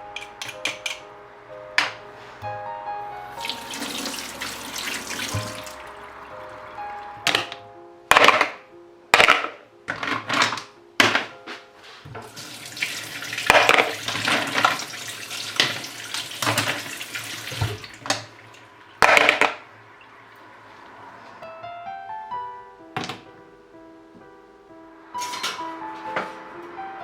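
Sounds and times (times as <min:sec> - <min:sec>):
tap water running into sink: 0:03.3 - 0:07.5, 0:12.2 - 0:20.5.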